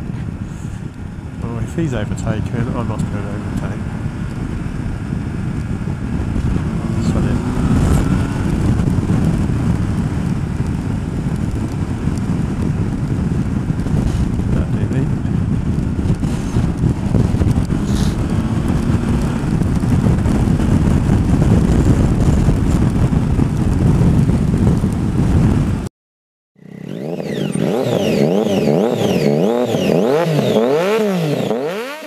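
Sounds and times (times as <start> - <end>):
motorcycle engine riding: 0.0 - 25.9, 26.6 - 32.0
wind noise: 0.0 - 25.9, 26.6 - 32.0
electronic warbling tone: 26.6 - 31.9.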